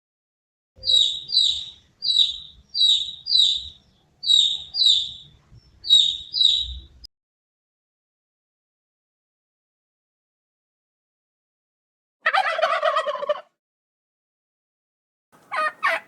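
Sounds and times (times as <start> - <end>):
bird chirping: 0.8 - 7.1.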